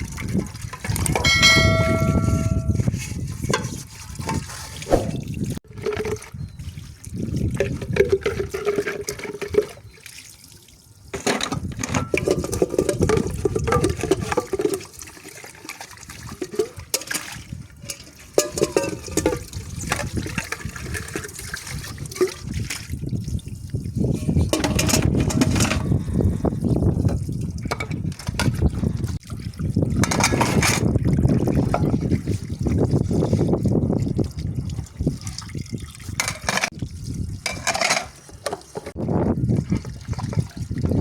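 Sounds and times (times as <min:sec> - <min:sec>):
dishes clinking and knocking: 0:00.9 - 0:02.8, 0:18.4 - 0:19.4.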